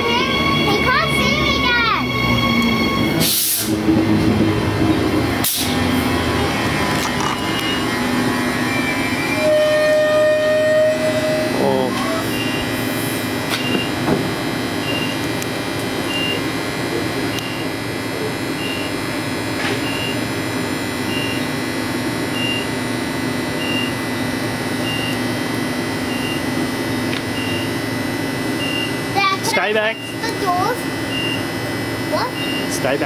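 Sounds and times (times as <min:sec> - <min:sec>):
electric train humming: 0:00.0 - 0:33.0
short high beeps: 0:32.4 - 0:32.8.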